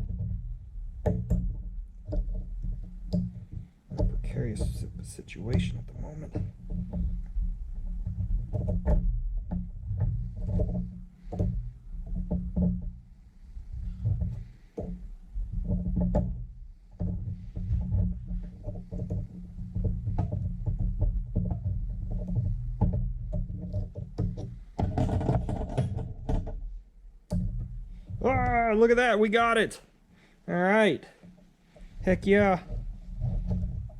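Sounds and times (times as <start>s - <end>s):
steady low hum: 26.8s - 30.5s.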